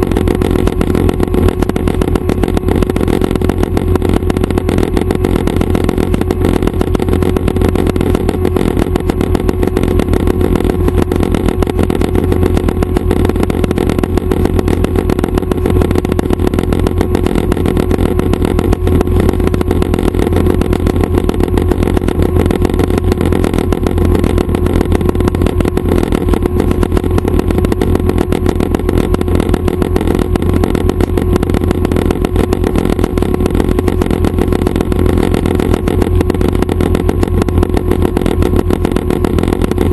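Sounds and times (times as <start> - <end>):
helicopter engine and rotors drone: 0.0 - 39.9.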